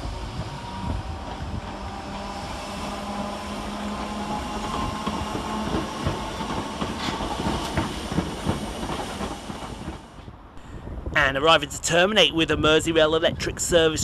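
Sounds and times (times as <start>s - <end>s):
train electric hum: 0.0s - 11.1s.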